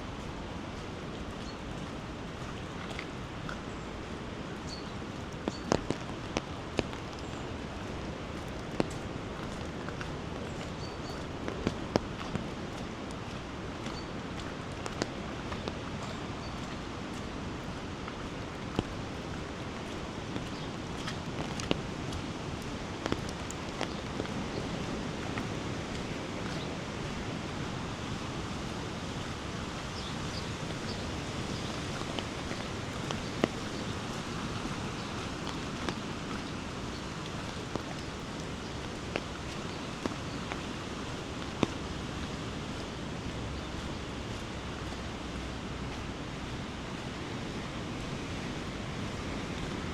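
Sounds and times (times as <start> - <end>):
wet weather hiss: 18.6 - 43.6.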